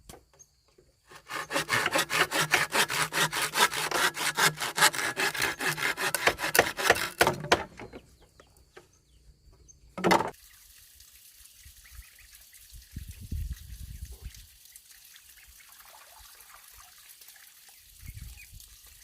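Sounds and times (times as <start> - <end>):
hand saw cutting bamboo: 1.1 - 8.0.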